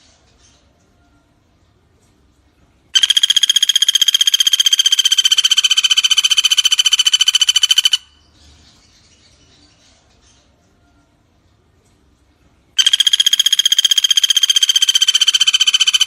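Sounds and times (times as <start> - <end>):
woodpecker rattling trill: 3.0 - 8.2, 12.8 - 16.0.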